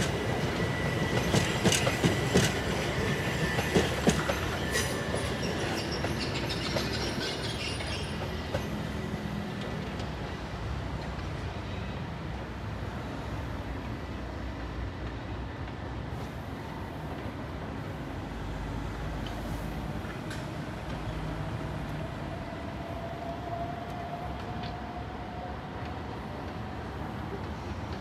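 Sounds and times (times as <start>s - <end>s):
train rumbling on tracks: 0.0s - 28.0s.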